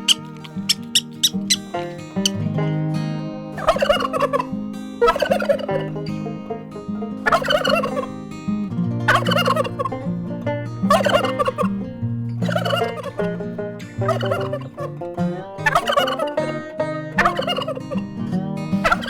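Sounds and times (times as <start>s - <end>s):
fowl calling: 0.0s - 2.4s, 3.6s - 8.4s, 9.1s - 10.2s, 10.8s - 11.8s, 12.4s - 15.0s, 15.6s - 18.2s, 18.8s - 19.0s
plucked-string background music: 0.0s - 19.0s.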